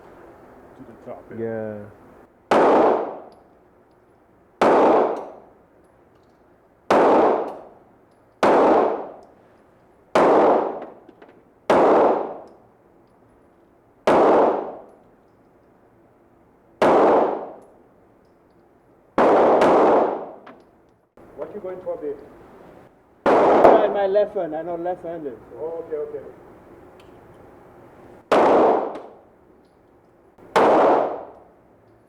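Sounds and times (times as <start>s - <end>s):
handgun shots echoing: 6.9s - 7.8s, 23.2s - 24.0s, 30.5s - 31.5s.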